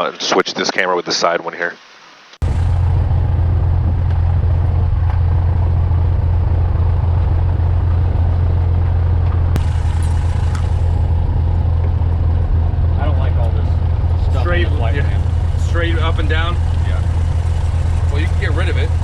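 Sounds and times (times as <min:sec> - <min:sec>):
propeller plane engine drone: 0:02.4 - 0:19.0.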